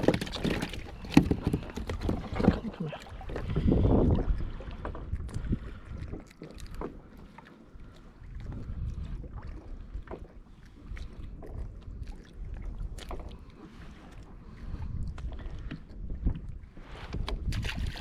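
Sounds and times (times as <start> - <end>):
wind buffeting microphone: 0.0 - 6.8, 8.2 - 10.2, 14.5 - 18.0
water lapping against kayak hull: 0.0 - 18.0
small splashes: 17.5 - 18.0.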